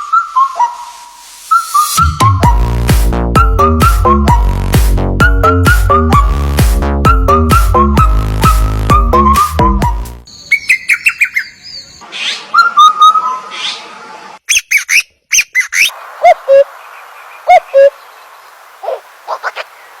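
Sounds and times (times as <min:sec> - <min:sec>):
background hiss: 0:00.0 - 0:02.0, 0:15.9 - 0:20.0
birds chirping and whistling: 0:00.0 - 0:02.8, 0:07.1 - 0:18.2
electronic dance music: 0:01.9 - 0:10.2.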